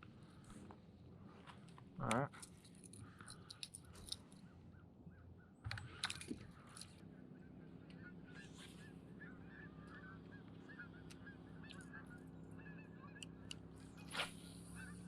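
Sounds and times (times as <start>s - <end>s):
geese honking: 7.4s - 13.4s.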